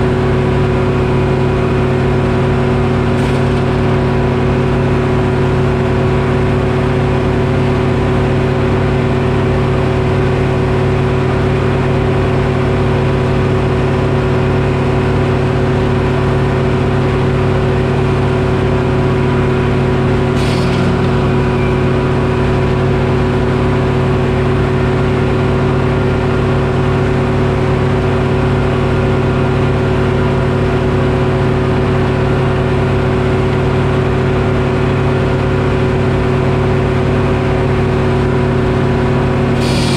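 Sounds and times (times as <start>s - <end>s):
diesel engine running steadily: 0.0s - 39.9s
brief sharp sound: 19.4s - 24.8s, 39.6s - 39.9s.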